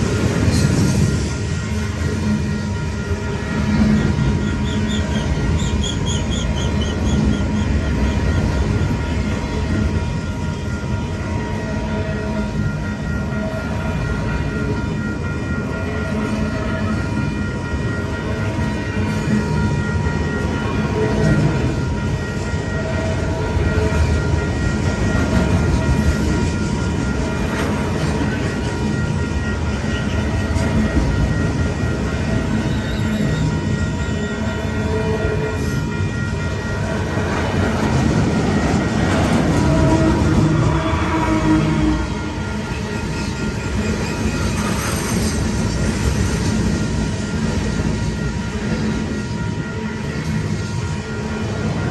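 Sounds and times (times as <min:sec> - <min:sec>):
freight train wheels rumbling: 0:00.0 - 0:51.9.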